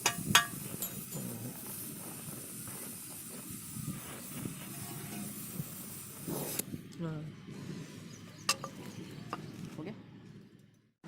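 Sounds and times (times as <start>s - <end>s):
steady hiss: 0.0s - 6.8s.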